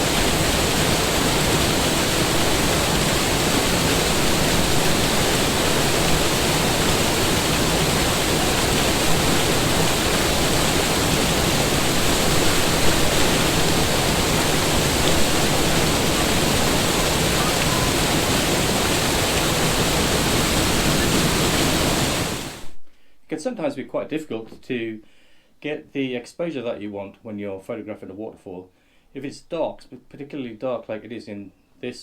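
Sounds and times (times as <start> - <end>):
waterfall roaring: 0.0 - 22.7.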